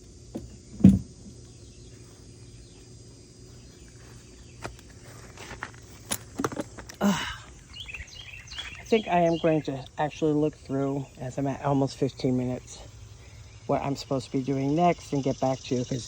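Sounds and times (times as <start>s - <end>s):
insect chirring: 0.0s - 16.0s
loud thump: 0.4s - 1.2s
clicks and knocks of parts: 4.6s - 7.0s.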